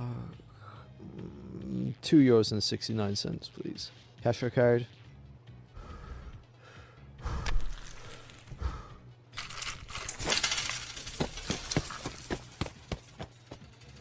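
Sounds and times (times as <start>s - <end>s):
coins clinking: 9.4s - 14.0s.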